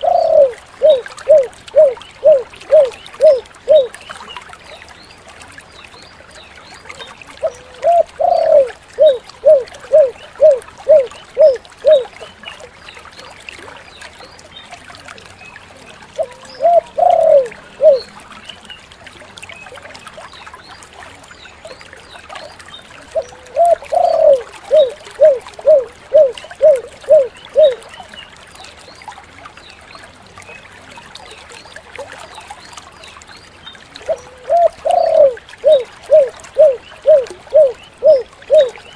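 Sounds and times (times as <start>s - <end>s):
dove cooing: 0.0s - 3.9s, 7.4s - 12.2s, 16.2s - 18.1s, 23.2s - 27.8s, 34.1s - 38.8s.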